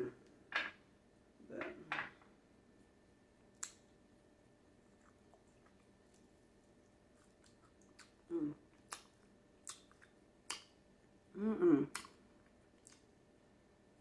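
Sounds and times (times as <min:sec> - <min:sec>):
person chewing: 0:04.8 - 0:10.7, 0:11.9 - 0:13.1
closed-mouth hum: 0:06.8 - 0:12.2.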